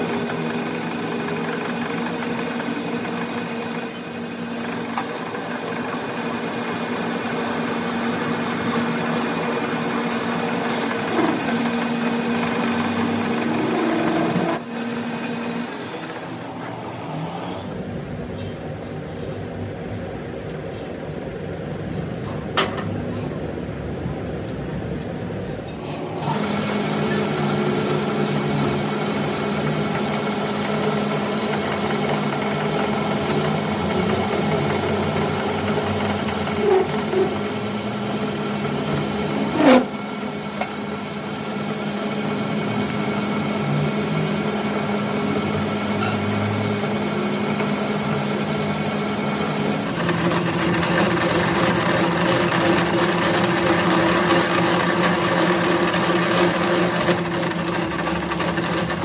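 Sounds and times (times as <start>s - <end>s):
machine motor humming: 8.3s - 17.9s, 49.7s - 59.0s.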